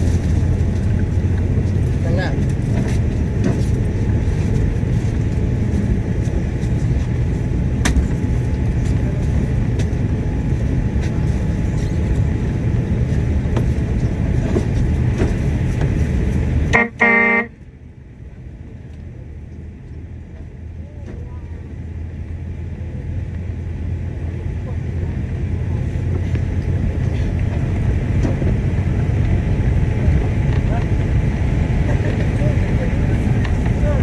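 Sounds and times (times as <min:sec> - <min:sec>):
vehicle engine rumble and road noise: 0:00.0 - 0:34.0
short horn toot: 0:16.7 - 0:17.5.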